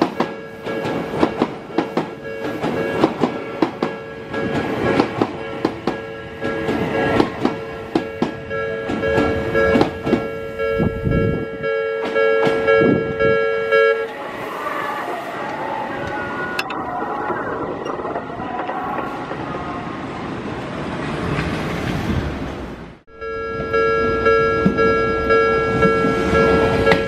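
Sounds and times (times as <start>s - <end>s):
train wheels clattering over joints: 0.0s - 10.4s
level crossing warning bell: 0.0s - 14.3s, 23.1s - 27.0s.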